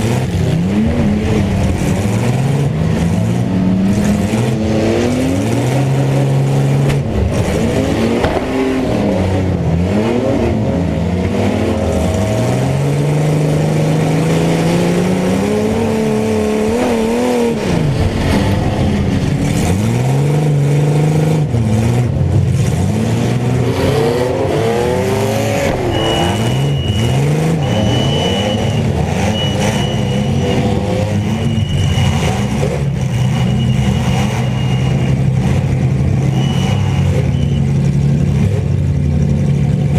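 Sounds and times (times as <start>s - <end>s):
mini truck engines revving: 0.0s - 39.9s
high tone pulses: 25.4s - 32.2s.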